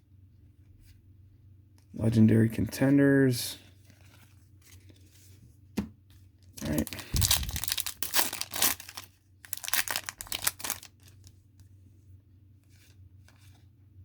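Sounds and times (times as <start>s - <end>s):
cards rustling: 6.6s - 11.3s
wrapper tearing and crinkling: 6.6s - 11.3s.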